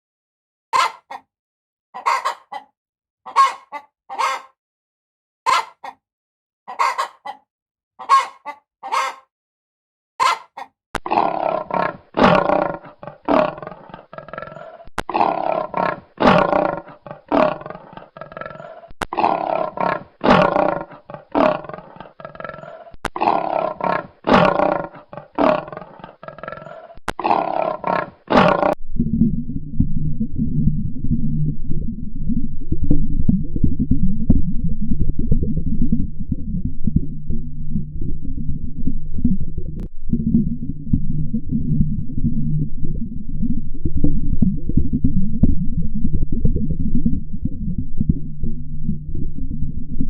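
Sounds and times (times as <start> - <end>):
short sharp animal calls: 0.8 - 1.3, 3.3 - 4.5, 8.0 - 9.3, 10.2 - 10.7
harsh roaring animal calls: 11.1 - 28.8
low rumbling: 28.7 - 50.0.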